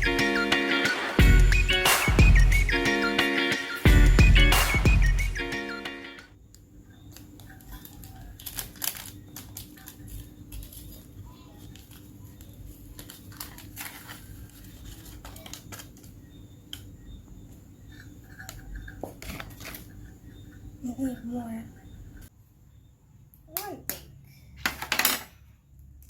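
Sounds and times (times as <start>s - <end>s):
packaging rustling: 7.2s - 16.2s
measuring cups and spoons clicking: 17.9s - 21.9s.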